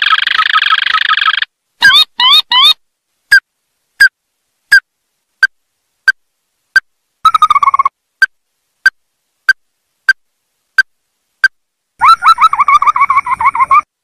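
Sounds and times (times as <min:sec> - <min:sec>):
bird calling sharp notes: 0:00.0 - 0:03.4, 0:12.0 - 0:13.9
rapid bird trill: 0:00.0 - 0:03.4, 0:07.3 - 0:07.9, 0:12.0 - 0:13.9.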